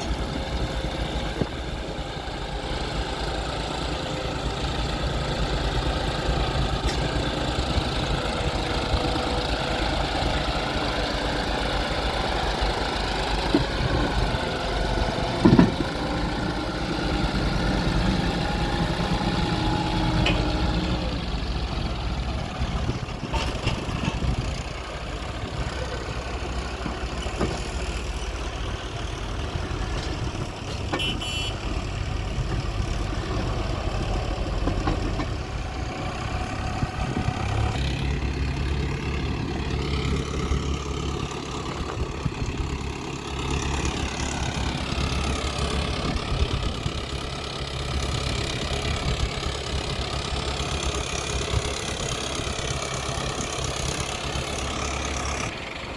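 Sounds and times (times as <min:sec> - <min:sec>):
diesel engines running: 0:00.0 - 0:55.9.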